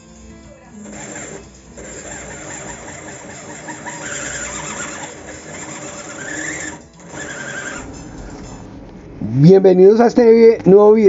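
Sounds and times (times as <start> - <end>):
sewing machine clattering: 0.8 - 8.0
sewing machine squeal: 0.8 - 8.0.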